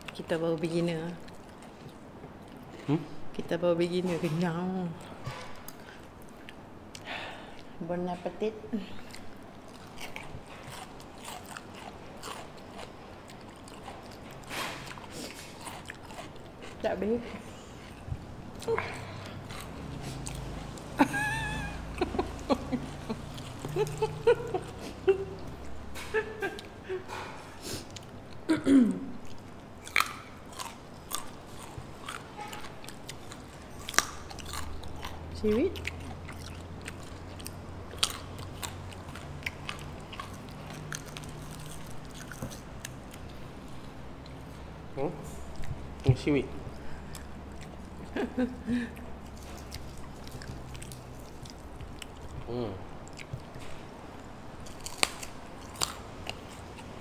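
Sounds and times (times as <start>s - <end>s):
crunchy biting and chewing: 9.0s - 28.4s, 29.2s - 46.1s, 49.0s - 57.0s
people crunching fried chicken: 54.6s - 56.5s.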